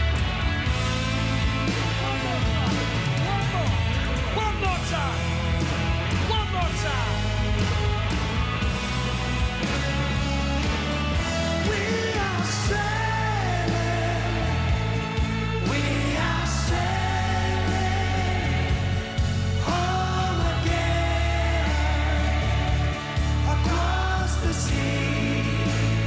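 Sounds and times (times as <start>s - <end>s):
rock band playing: 0.0s - 26.0s
lead vocal singing: 10.7s - 26.0s.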